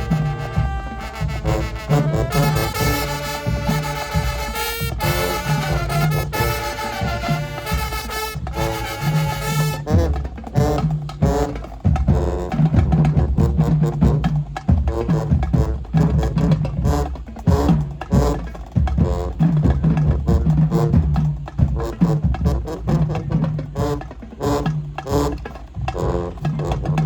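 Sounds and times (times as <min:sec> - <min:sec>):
brass sustained chords: 0:00.0 - 0:10.0
bass and snare drums: 0:00.0 - 0:27.0.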